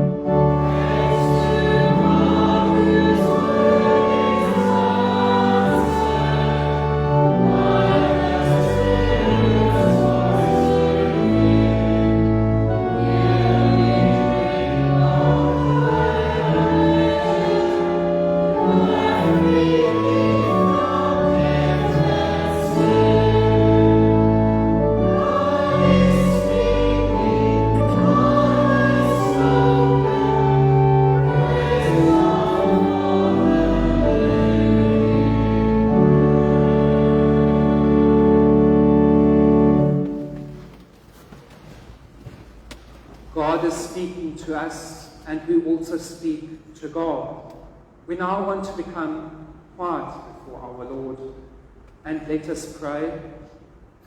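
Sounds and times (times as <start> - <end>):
held bass notes: 0.0 - 40.3
choir singing a hymn: 0.0 - 40.5.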